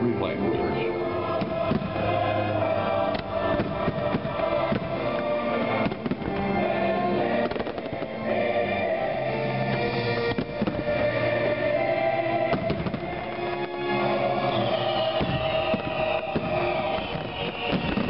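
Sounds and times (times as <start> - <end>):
loud show music: 0.0 - 18.0
fireworks bangs and pops: 1.3 - 2.3, 3.0 - 6.7, 7.3 - 8.2, 9.7 - 11.6, 12.4 - 18.0.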